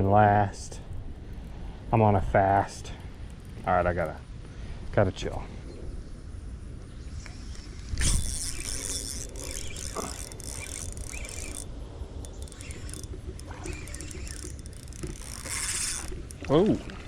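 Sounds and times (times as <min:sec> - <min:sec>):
wind on microphone: 0:05.4 - 0:17.0
fishing line hissing: 0:06.9 - 0:17.0
fishing reel cranking: 0:07.2 - 0:17.0.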